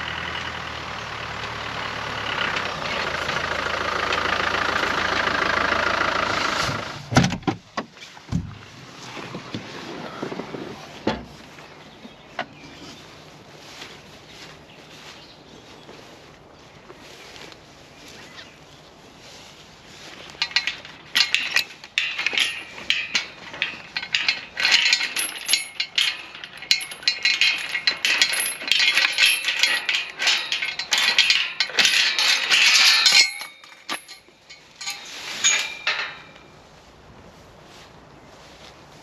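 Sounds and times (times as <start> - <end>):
metallic clinking and rattling: 20.0 - 36.5.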